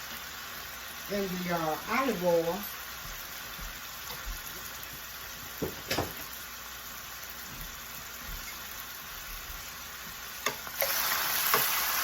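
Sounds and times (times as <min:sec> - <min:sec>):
mushrooms sizzling in a pan: 0:00.0 - 0:12.0
knock: 0:05.6 - 0:06.2.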